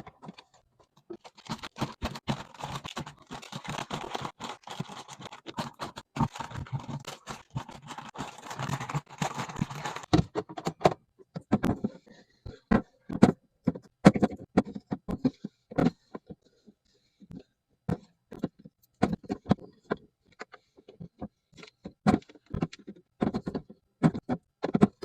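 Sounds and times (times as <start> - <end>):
items scratching and rustling: 0.0 - 10.8.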